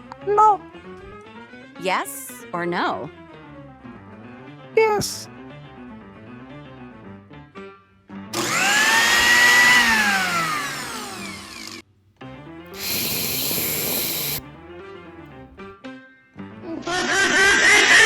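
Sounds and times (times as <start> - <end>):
harsh buzzing hiss: 12.8 - 14.4.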